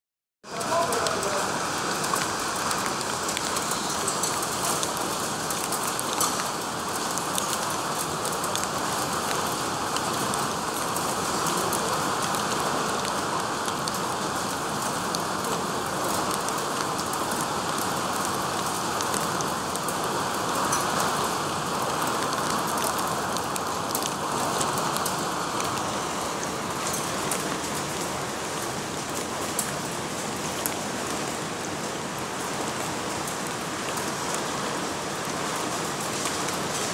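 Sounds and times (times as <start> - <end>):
heavy rain downpour: 0.4 - 36.9
raindrops hitting: 0.4 - 36.9.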